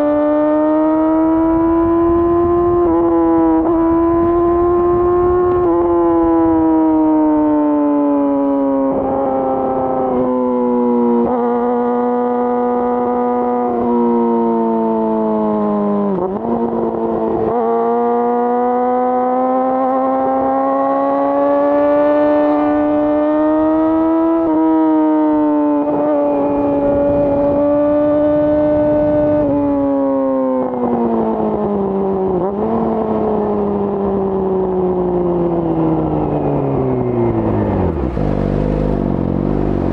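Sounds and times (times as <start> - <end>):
motorcycle engine revving: 0.0 - 6.8, 15.4 - 29.6, 34.8 - 39.9.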